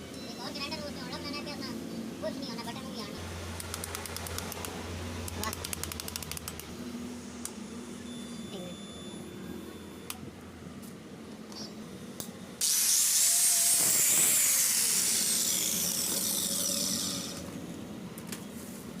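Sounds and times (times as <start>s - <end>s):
angle grinder high whine: 12.6s - 17.7s.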